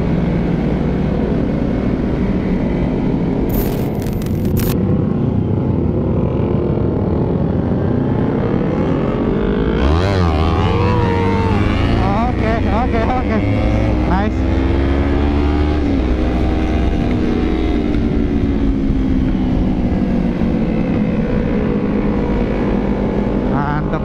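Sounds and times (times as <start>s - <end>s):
motorcycle engine running: 3.5s - 4.8s.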